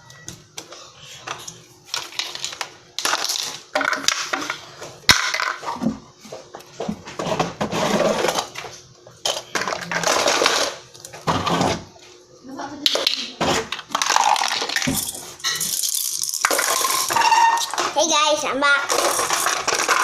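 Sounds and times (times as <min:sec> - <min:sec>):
hard objects clattering and scraping: 0:01.1 - 0:06.0, 0:06.8 - 0:11.9, 0:12.9 - 0:18.1, 0:18.8 - 0:20.0.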